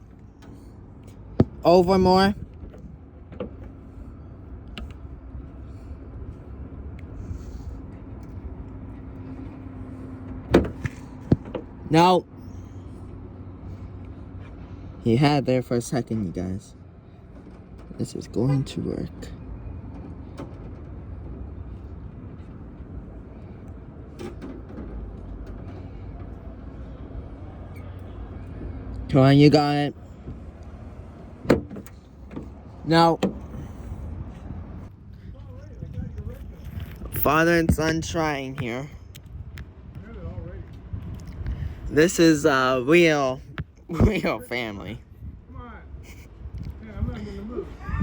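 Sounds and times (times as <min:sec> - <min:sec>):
low outdoor rumble: 0:00.0 - 0:48.0.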